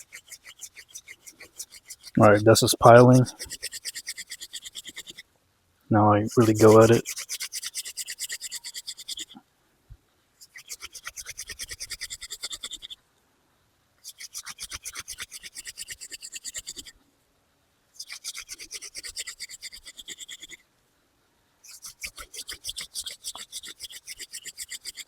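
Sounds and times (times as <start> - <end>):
wooden hand drill squeaking: 0.0 - 5.2, 6.3 - 9.3, 10.4 - 13.0, 14.0 - 16.9, 18.0 - 20.6, 21.7 - 25.0.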